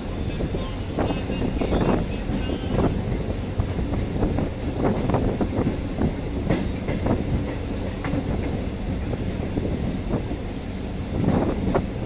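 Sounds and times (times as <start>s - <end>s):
train rumbling along track: 0.0s - 12.0s.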